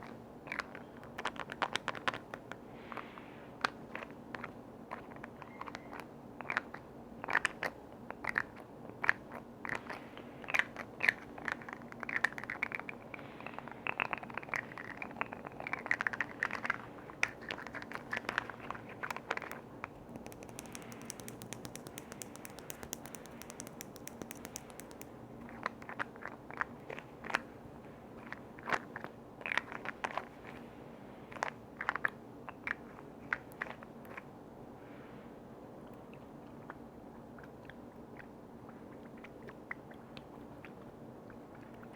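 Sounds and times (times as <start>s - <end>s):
fine crackling hiss: 12.8s - 25.8s
tapping on container lids: 20.1s - 25.1s.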